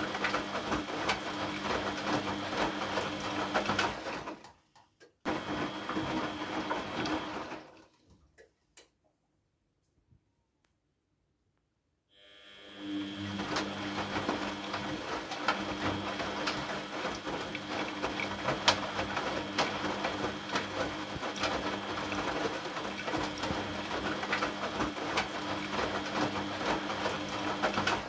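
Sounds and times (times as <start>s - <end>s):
washing machine motor hum: 0.0s - 4.6s, 5.2s - 8.0s, 12.1s - 28.0s
irregular clicks and ticks: 8.1s - 9.2s.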